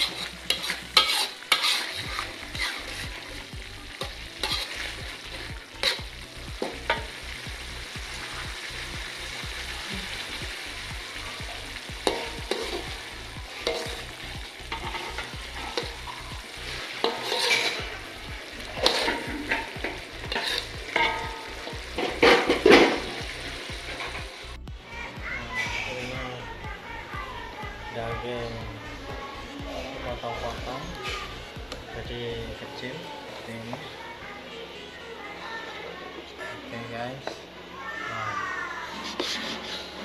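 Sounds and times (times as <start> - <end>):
metal spatula scraping a wok: 0.0 - 7.4, 13.6 - 14.0, 14.6 - 18.0, 18.7 - 24.5, 38.8 - 40.0
paste sizzling in oil: 0.0 - 24.7, 37.9 - 40.0.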